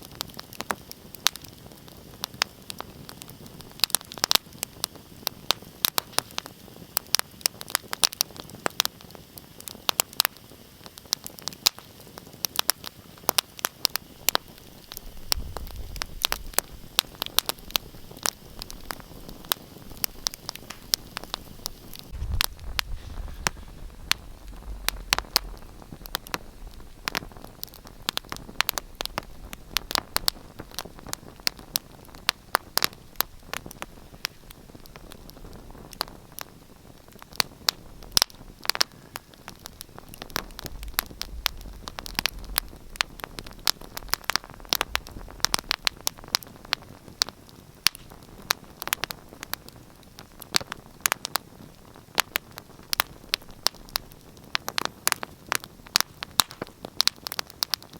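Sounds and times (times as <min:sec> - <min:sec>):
fire crackling and popping: 0:00.0 - 0:57.9
soft hiss of fire: 0:00.0 - 0:57.9
faint low rumble: 0:14.9 - 0:35.8, 0:37.7 - 0:47.2.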